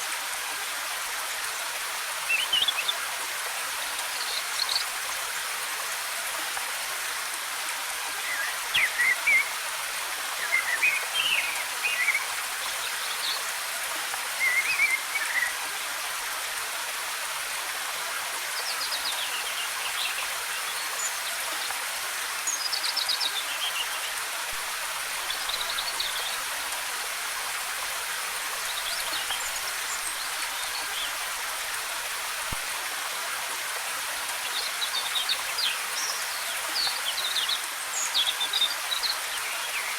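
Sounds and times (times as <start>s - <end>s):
waterfall rushing: 7.8s - 13.4s.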